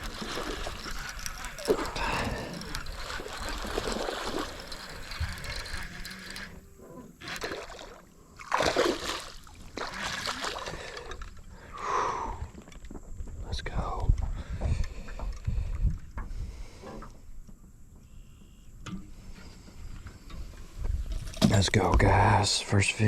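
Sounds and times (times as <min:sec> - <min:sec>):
water splashing and sloshing: 0:00.0 - 0:06.5, 0:07.2 - 0:11.6, 0:20.3 - 0:22.2.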